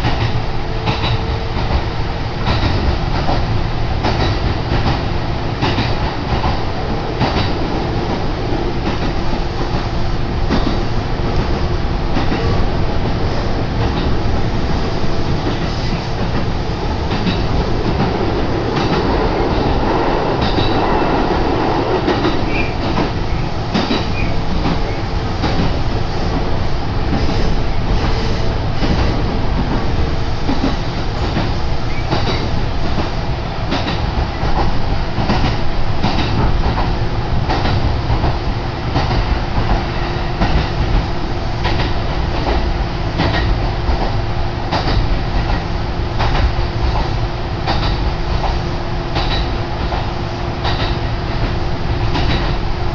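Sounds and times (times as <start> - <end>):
train wheels rumbling on rail: 0.0 - 52.9
clicks over rail joints: 50.6 - 51.5.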